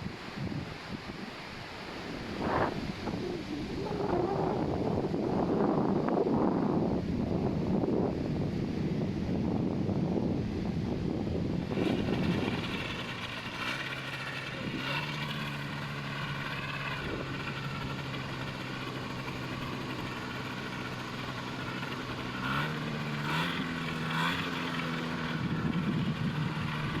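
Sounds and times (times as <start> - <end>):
propeller engine running: 1.0 - 27.0.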